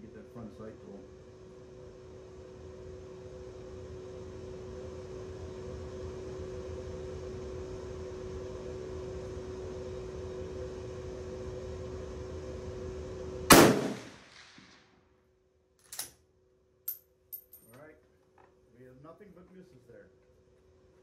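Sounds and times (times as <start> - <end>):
steady background hum: 0.0 - 21.0
rifle shot echoing: 13.5 - 14.8.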